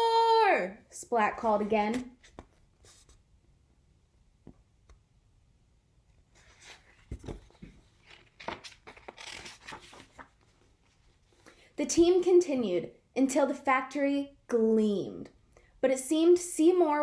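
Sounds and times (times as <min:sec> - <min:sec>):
paper pages rustling: 0:01.4 - 0:03.2, 0:06.3 - 0:11.4.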